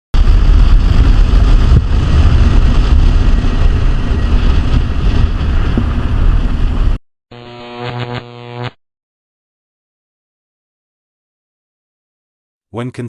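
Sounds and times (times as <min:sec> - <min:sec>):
vehicle and wind rushing: 0:00.2 - 0:07.0.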